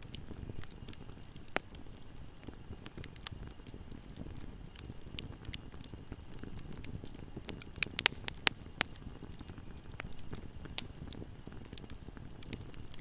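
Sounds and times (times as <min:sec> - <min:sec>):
low rumble of flames: 0:00.0 - 0:13.0
wood fire crackling and popping: 0:00.0 - 0:13.0.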